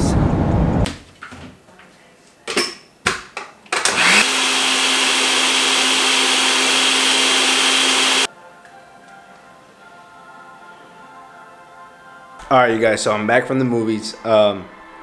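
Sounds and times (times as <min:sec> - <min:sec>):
blender clicks: 0:03.8 - 0:08.3
blender motor running: 0:03.8 - 0:08.3.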